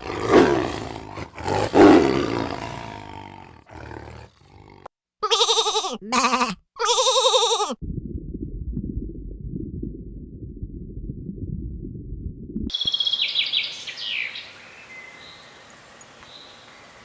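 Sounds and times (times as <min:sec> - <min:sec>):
low crackly rumble: 0:07.8 - 0:12.7
songbird chirping: 0:12.7 - 0:17.0.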